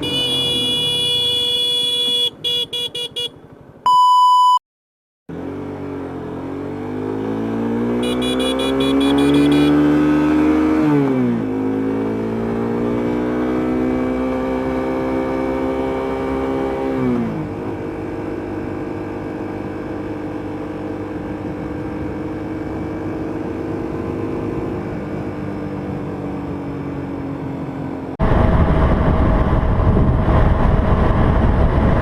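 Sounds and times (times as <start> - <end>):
short electronic beep: 3.9 - 4.6
motorcycle engine accelerating: 5.3 - 32.0.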